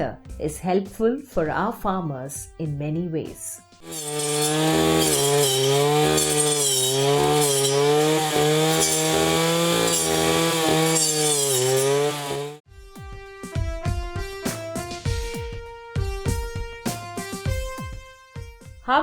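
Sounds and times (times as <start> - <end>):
blade rasping through stems: 3.8 - 12.6
brush cutter engine running: 3.8 - 12.6.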